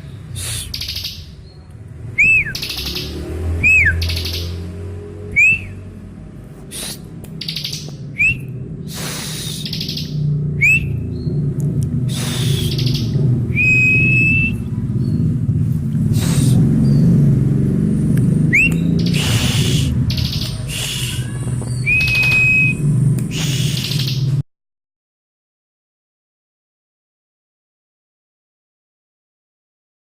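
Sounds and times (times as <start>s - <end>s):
buzzy rasping bird notes: 0.0s - 1.7s, 2.3s - 5.9s, 6.7s - 15.4s, 18.4s - 24.4s
bird whistled calls: 0.3s - 4.7s, 5.3s - 5.9s, 6.7s - 11.4s, 12.1s - 15.2s, 18.5s - 24.4s
steady low hum: 4.6s - 22.0s.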